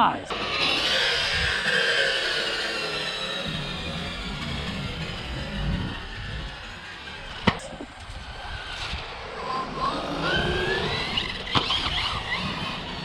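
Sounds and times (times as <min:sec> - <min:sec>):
rc car motor whining: 0:00.3 - 0:13.0.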